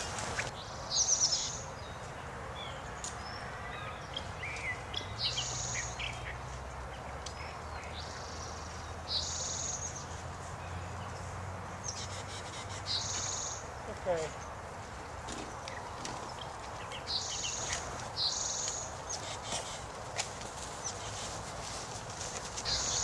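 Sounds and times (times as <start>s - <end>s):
birds chirping: 0.0s - 23.0s
songbird trilling phrase: 22.7s - 23.0s.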